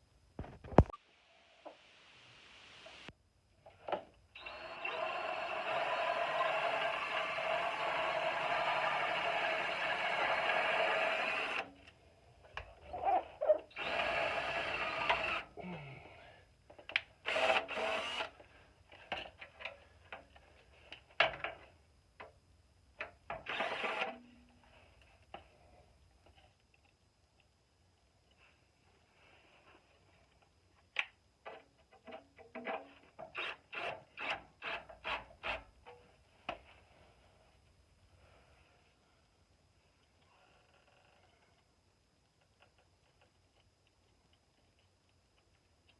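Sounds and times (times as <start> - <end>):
power drill driving screws into metal: 4.4 - 11.7, 13.7 - 15.5, 17.2 - 18.4, 23.4 - 24.2.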